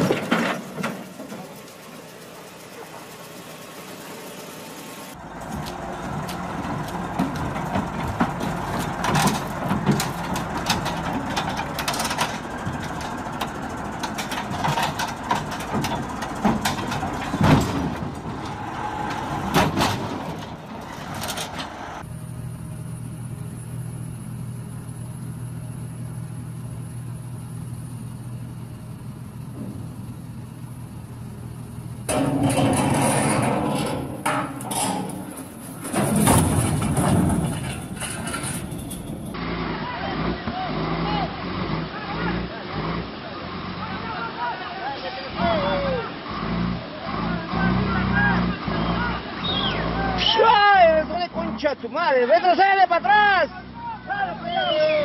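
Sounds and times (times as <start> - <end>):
heavy machinery running: 0.0 - 40.9
sharp metal clanks and knocks: 7.2 - 21.8, 32.1 - 39.4.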